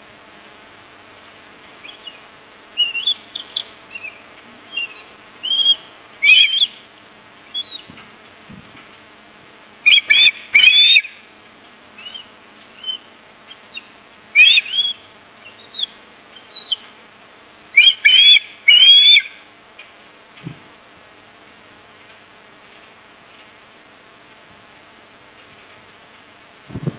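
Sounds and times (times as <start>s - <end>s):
shrill bird chirps: 1.8s - 6.9s, 7.5s - 7.9s, 9.8s - 11.2s, 12.0s - 16.9s, 17.8s - 19.4s.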